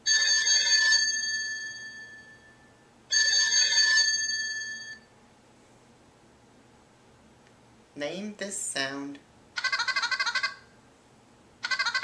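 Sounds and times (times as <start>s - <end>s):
phone ringtone bell: 0.0s - 5.1s, 11.6s - 12.0s.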